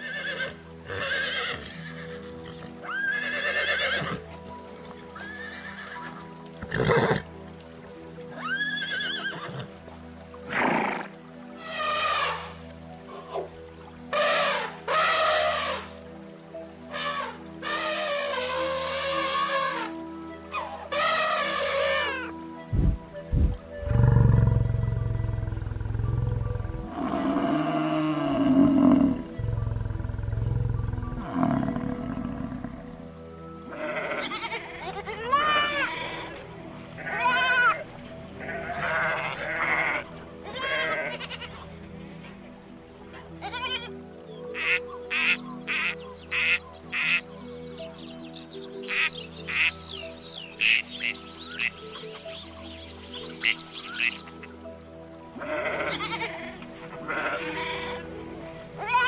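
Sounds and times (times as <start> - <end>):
background music: 0.0 - 59.0
high wavering animal call: 16.9 - 22.4
lion growling: 23.8 - 32.9.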